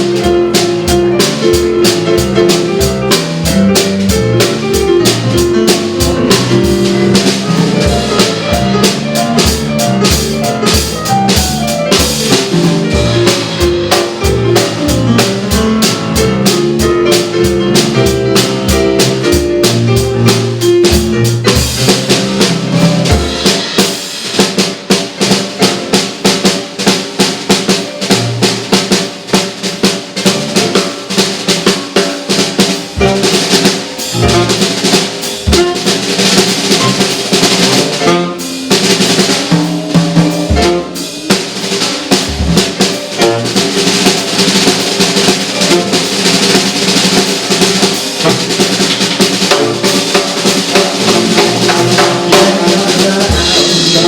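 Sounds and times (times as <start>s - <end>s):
drum kit: 0.0s - 54.0s
pulsing bass line: 3.2s - 15.5s
saxophone: 34.2s - 34.7s, 37.9s - 38.7s, 40.4s - 41.3s.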